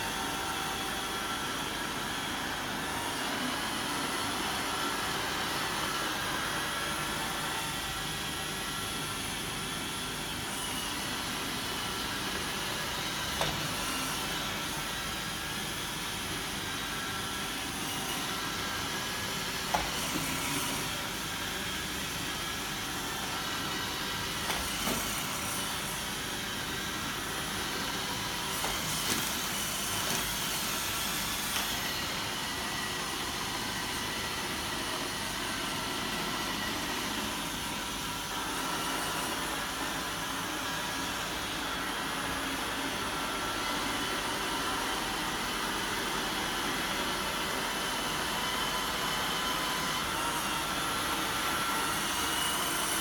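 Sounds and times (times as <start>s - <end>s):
robot vacuum whirring: 22.4s - 39.5s.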